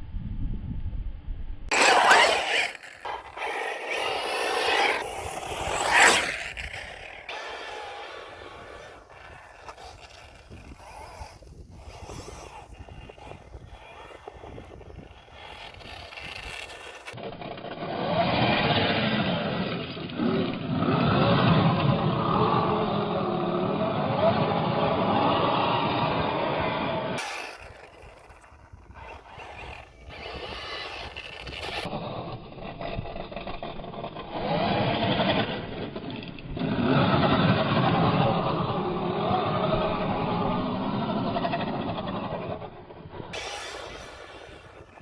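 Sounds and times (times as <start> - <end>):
electric motor whining: 1.7 - 17.2, 27.2 - 31.9, 43.4 - 45.0
tyres on dirt: 1.7 - 17.2, 27.2 - 31.9, 41.4 - 45.0.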